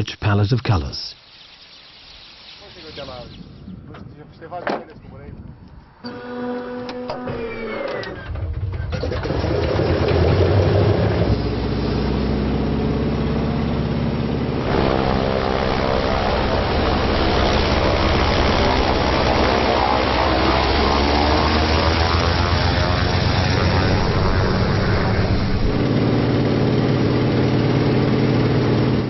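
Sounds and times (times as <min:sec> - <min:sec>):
biplane piston engine drone: 0:09.2 - 0:29.0.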